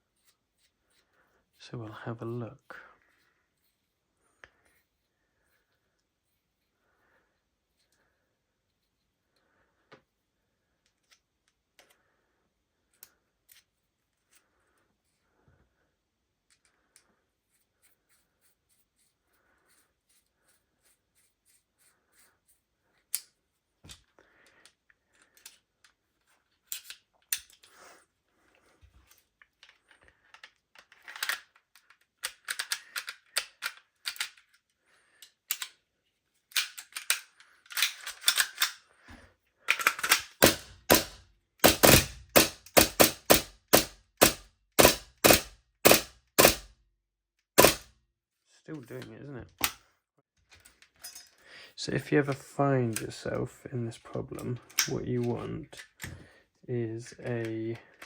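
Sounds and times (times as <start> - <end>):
pistol mechanism clicks: 36.5 - 38.8, 39.7 - 46.7, 47.6 - 47.9
loud metallic clacks: 47.6 - 47.8.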